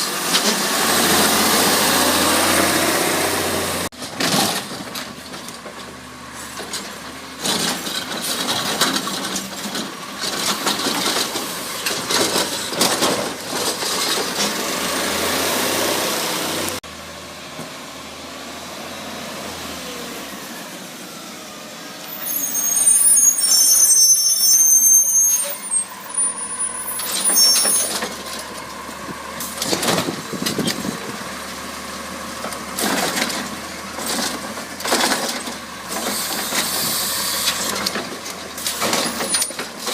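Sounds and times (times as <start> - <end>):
garbage truck engine and machinery: 0.0 - 39.9
loud high-pitched hiss with squealing: 22.1 - 27.9.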